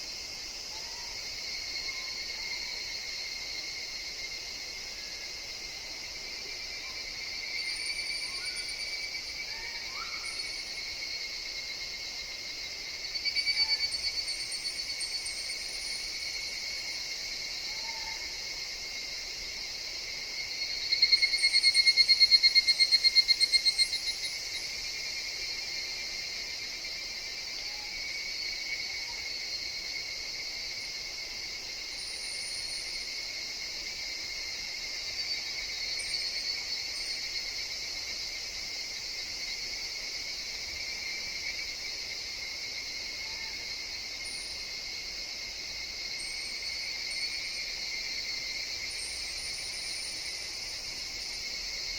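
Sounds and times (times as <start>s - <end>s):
evening cicadas calling: 0.0s - 51.9s
shrill insect chorus: 0.0s - 51.9s.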